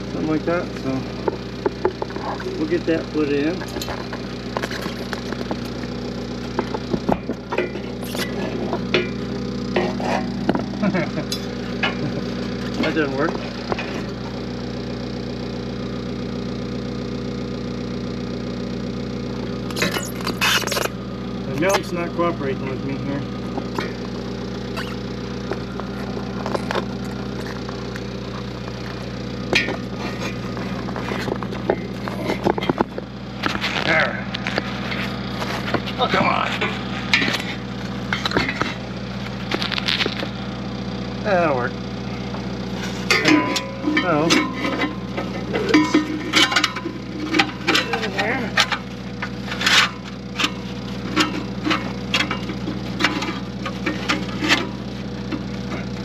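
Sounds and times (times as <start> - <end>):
machine humming: 0.0 - 56.0
sharp knocks and clanks: 0.2 - 14.4, 23.5 - 40.4, 42.9 - 56.0
hammer striking steel: 43.1 - 45.0.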